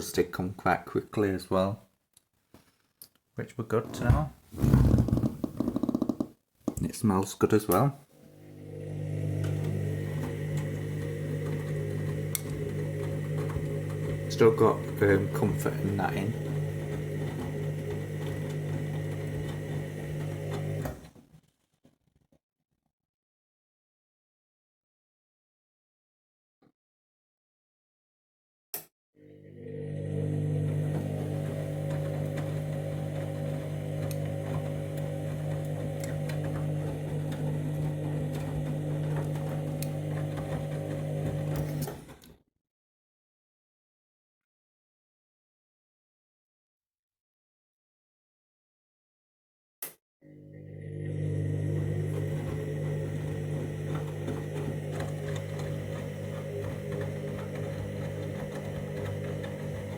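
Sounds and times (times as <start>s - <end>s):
washing machine motor humming: 8.2s - 21.2s, 29.2s - 42.2s, 50.3s - 59.9s
soft clicks of tumbling wash: 30.9s - 41.9s.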